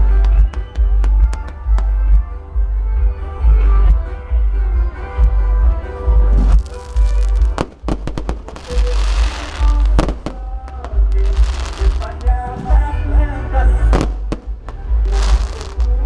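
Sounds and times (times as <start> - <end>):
loud music with heavy bass: 0.0 - 16.0
fireworks bangs and crackling: 6.3 - 12.9, 13.9 - 16.0.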